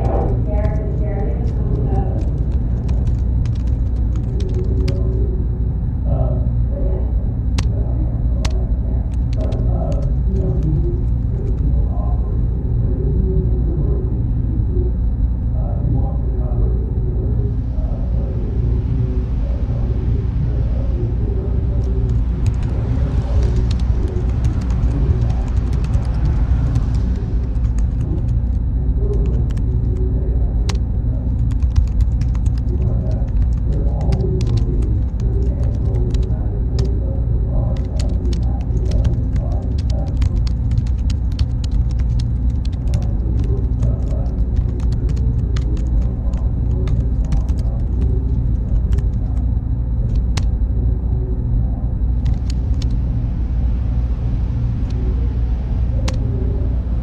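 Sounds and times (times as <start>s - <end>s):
small irregular clicks: 0.0s - 5.1s, 8.4s - 11.7s, 23.4s - 28.6s, 30.7s - 36.9s, 37.8s - 50.5s, 52.2s - 52.9s
faint high-pitched whine: 0.0s - 57.0s
loud low rumble: 0.0s - 57.0s.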